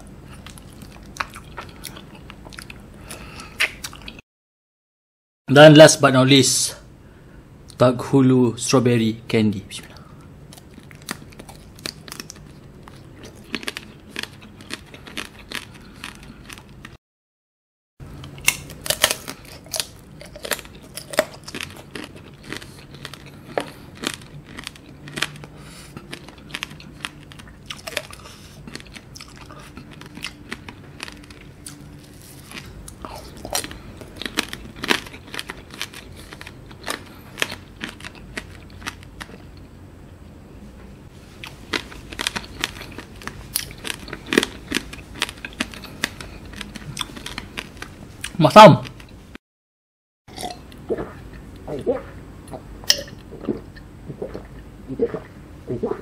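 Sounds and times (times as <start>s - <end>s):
wet chewing: 18.2s - 39.4s, 41.4s - 49.1s.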